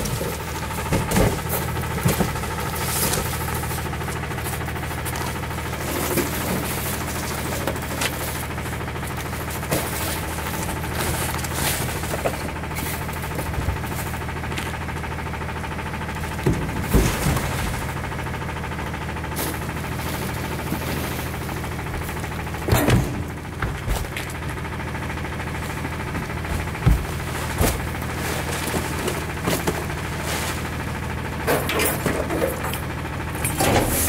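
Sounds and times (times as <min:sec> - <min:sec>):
garbage truck engine running: 0:00.0 - 0:34.0
knocks and clatters: 0:16.3 - 0:18.0, 0:22.6 - 0:24.6, 0:26.1 - 0:29.9.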